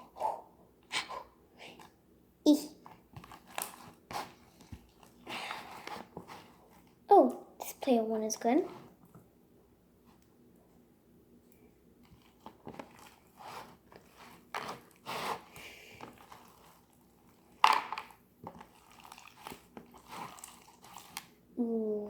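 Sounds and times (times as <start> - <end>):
slime squelching: 12.0 - 22.0.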